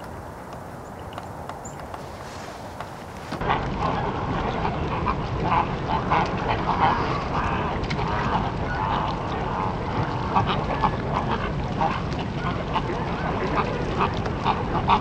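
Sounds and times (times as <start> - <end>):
birds calling: 0.0 - 3.4.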